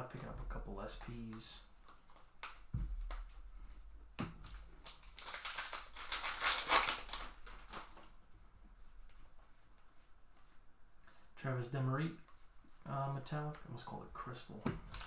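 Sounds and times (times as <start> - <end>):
wrapper crinkling: 4.4 - 8.2.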